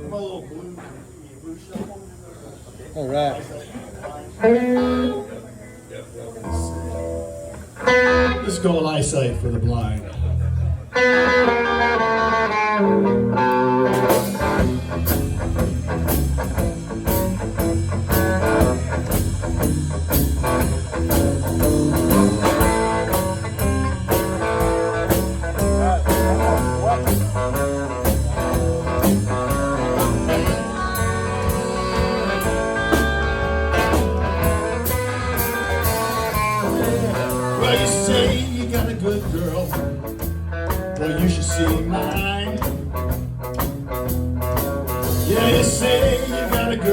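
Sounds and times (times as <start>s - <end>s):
blues band playing: 4.1s - 5.5s, 6.4s - 46.9s
drums shuffle beat: 13.4s - 46.9s.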